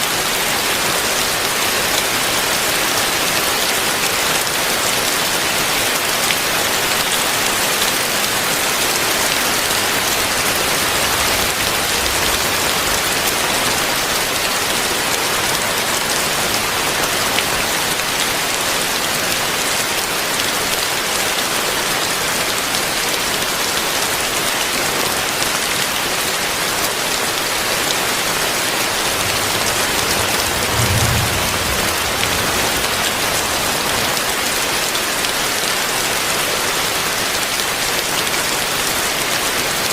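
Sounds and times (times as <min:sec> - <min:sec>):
heavy rain falling: 0:00.0 - 0:39.9
low rumble: 0:28.8 - 0:34.2.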